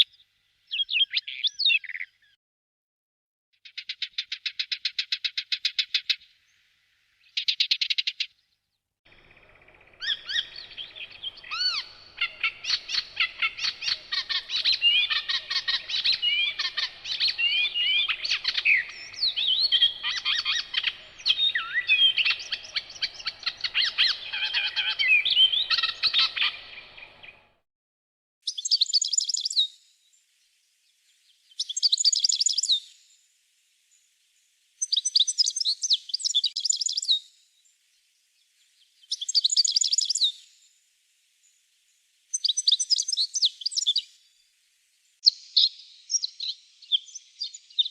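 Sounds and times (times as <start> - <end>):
songbirds singing: 0.0 - 2.4, 3.6 - 27.6, 28.4 - 33.1, 33.9 - 40.7, 41.4 - 47.9
bird trills: 9.1 - 27.6.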